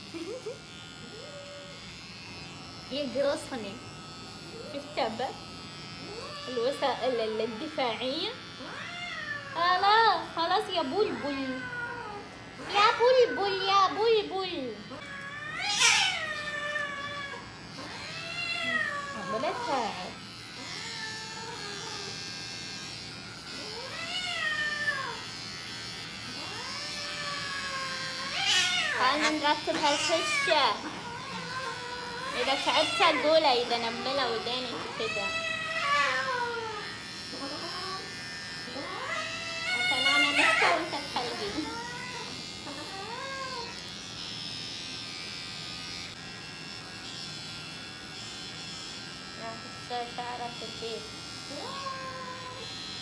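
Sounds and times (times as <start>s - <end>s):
electric hair clippers buzzing: 0.0s - 53.0s
cat meowing: 15.0s - 17.4s, 18.0s - 19.3s, 26.5s - 33.2s.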